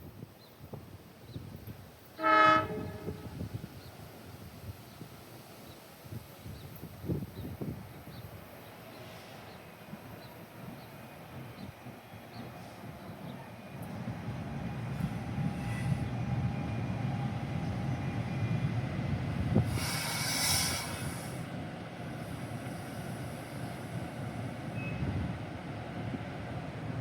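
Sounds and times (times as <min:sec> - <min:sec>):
train rumbling on rails: 0:00.7 - 0:27.0
burst of hissing: 0:19.6 - 0:21.5.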